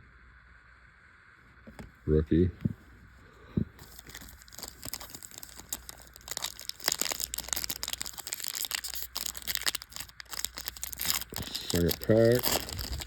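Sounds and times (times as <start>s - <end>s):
foil wrapper crinkling and tearing: 3.8s - 13.0s.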